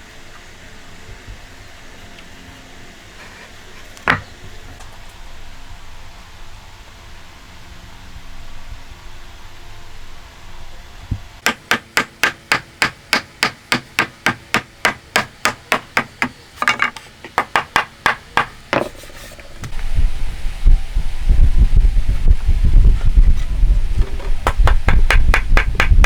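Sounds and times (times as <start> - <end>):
low rumble: 19.7 - 25.8
hammer blows on wood: 24.4 - 26.0.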